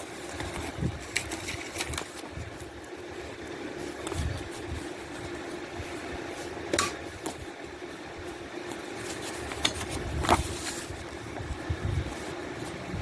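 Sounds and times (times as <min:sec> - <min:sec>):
steady hum: 0:00.0 - 0:13.0
plastic disc case clicking: 0:09.5 - 0:10.8.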